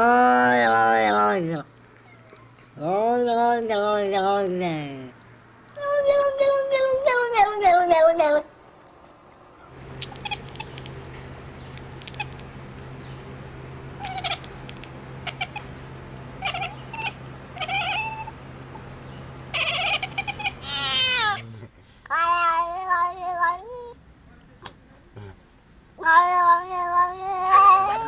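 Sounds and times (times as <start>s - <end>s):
steady low hum: 0.0s - 6.1s, 8.4s - 21.8s
cat meowing: 2.0s - 2.9s, 9.8s - 11.2s, 11.8s - 12.5s, 14.0s - 15.8s, 16.4s - 18.4s, 19.5s - 21.5s, 26.0s - 28.0s.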